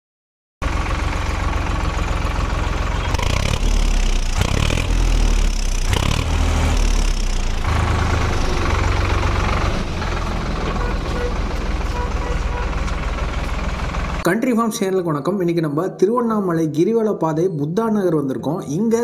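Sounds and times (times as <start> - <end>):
tractor diesel engine rumbling: 0.6 - 19.0.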